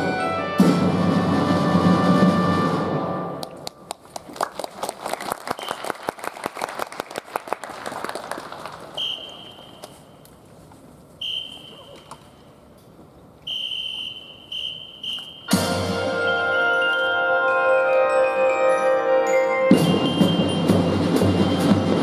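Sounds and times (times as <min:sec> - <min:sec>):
whistle blasts: 0:05.6 - 0:05.9, 0:09.0 - 0:10.2, 0:11.2 - 0:12.2, 0:13.4 - 0:15.8, 0:19.7 - 0:20.8.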